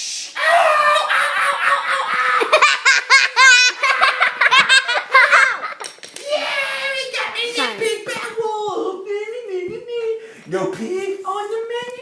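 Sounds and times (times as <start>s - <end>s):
children laughing: 0.4s - 8.4s.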